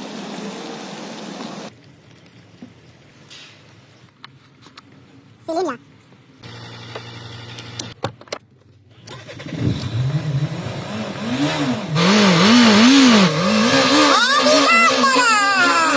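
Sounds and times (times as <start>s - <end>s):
car engine revving: 9.1s - 15.9s.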